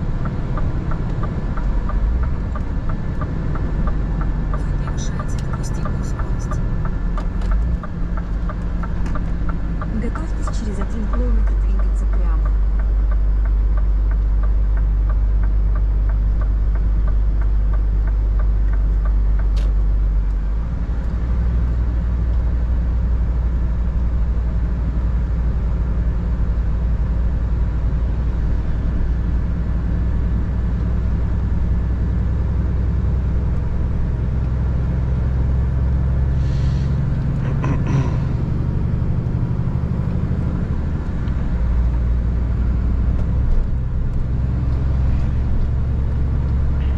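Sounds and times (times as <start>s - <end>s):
light ticking: 0.0s - 20.4s
diesel truck engine droning: 0.0s - 46.9s
short hissing sounds: 36.4s - 37.0s.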